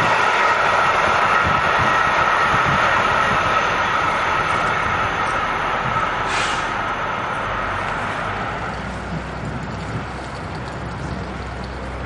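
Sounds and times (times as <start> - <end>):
freight train wheels whining: 0.0 - 10.3
sharp hiss: 6.2 - 6.8.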